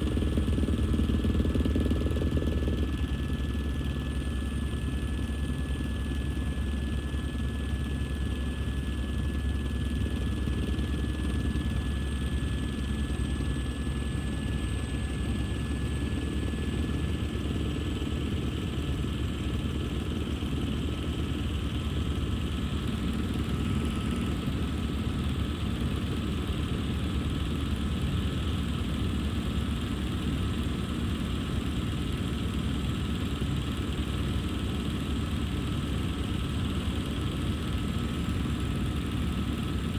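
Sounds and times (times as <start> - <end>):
helicopter rotor and engine drone: 0.0 - 39.9.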